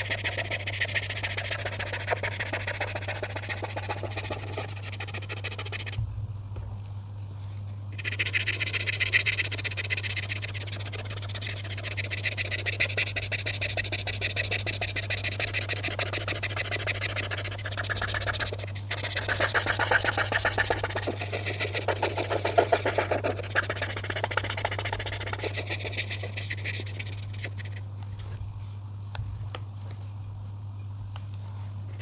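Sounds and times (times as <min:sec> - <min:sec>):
coloring strokes scratching paper: 0:00.0 - 0:06.0, 0:08.0 - 0:27.8.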